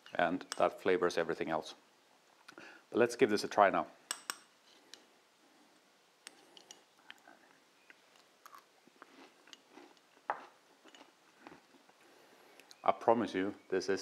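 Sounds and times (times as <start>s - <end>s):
person chewing crunchy food: 6.3s - 12.8s.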